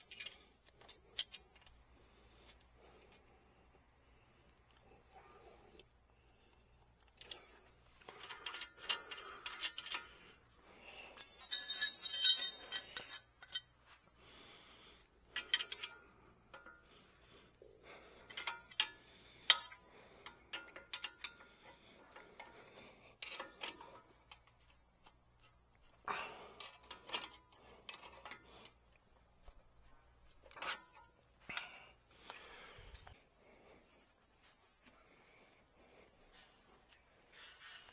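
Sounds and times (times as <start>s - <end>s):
metal tools clinking and rattling: 8.0s - 10.1s, 11.2s - 13.7s
ringing metallic jangle: 11.2s - 13.7s.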